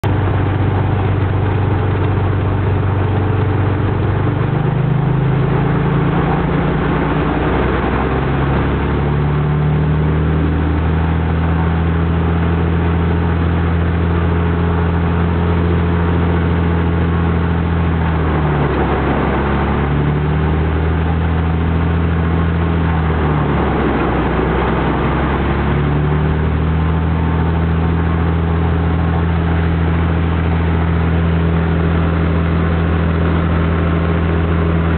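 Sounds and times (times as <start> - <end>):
piston aircraft engine running: 0.0 - 34.9.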